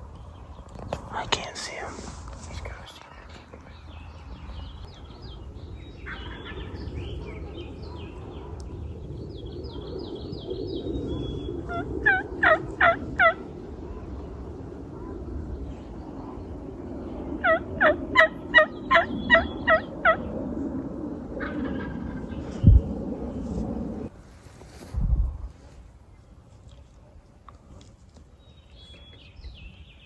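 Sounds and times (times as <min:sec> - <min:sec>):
turkey yelping: 0:11.7 - 0:13.4, 0:17.4 - 0:20.2.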